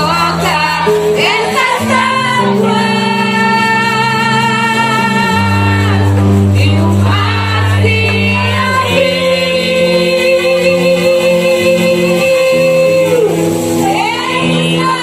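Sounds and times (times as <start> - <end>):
bass and band accompaniment: 0.0 - 15.0
woman singing with vibrato: 0.0 - 15.0.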